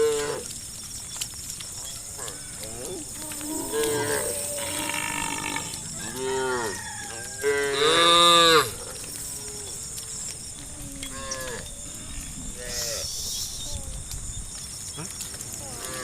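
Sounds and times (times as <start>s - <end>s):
cows mooing: 2.1s - 13.2s.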